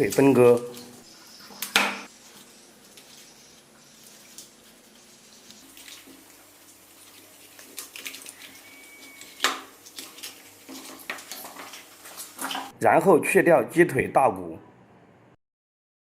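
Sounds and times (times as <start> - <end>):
knife slicing raw chicken: 7.6 - 10.4.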